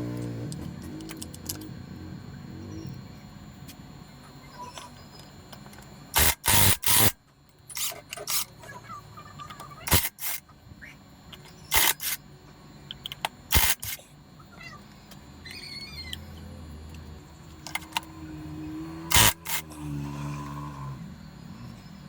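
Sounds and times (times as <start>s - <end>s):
tools and parts clicking: 0.0s - 1.7s, 5.1s - 8.6s, 9.5s - 10.4s, 11.3s - 12.2s, 12.9s - 14.0s, 16.9s - 18.1s, 19.1s - 19.7s
low steady hum: 0.0s - 22.0s.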